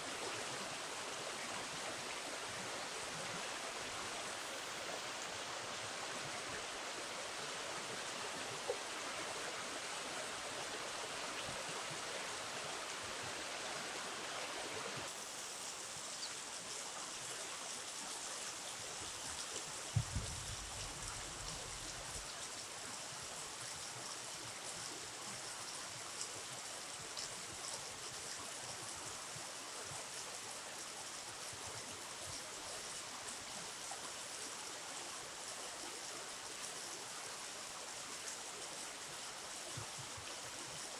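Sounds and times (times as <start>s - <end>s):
river water flowing: 0.0s - 19.9s.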